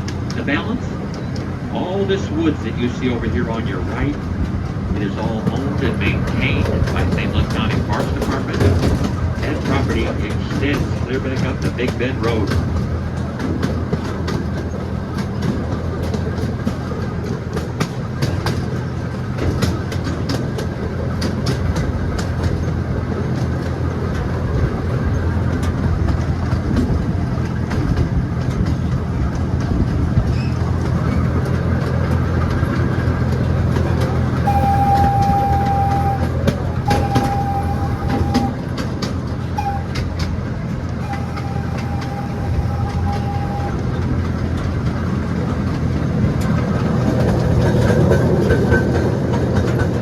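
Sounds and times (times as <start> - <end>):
miniature train engine humming: 0.0 - 50.0
wheels clicking over rail joints: 0.0 - 50.0
steady high tone: 33.8 - 38.6, 39.5 - 40.1, 41.0 - 43.8.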